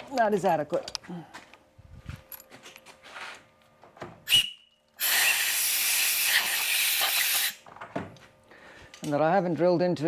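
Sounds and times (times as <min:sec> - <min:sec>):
air puff: 0:04.3 - 0:07.6
pressurised air hissing: 0:04.3 - 0:07.6.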